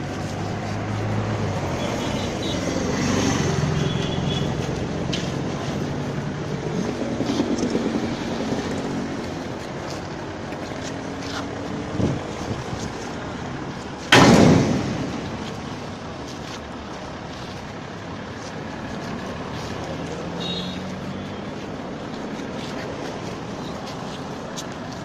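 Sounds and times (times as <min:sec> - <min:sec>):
thump: 0:14.1 - 0:15.4.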